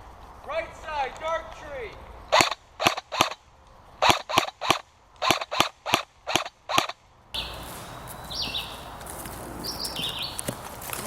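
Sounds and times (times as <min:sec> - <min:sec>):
airsoft gun single shots: 0:02.3 - 0:03.4, 0:04.0 - 0:07.0.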